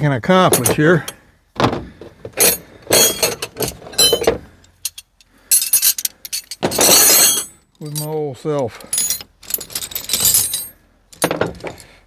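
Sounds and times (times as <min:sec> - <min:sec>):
metal tools clinking: 0:00.5 - 0:01.2, 0:02.4 - 0:08.2, 0:08.8 - 0:11.9.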